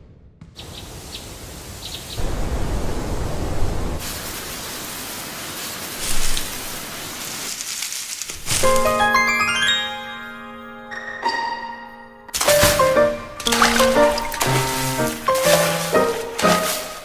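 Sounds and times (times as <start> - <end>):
rushing hiss-like noise: 0.6 - 9.0.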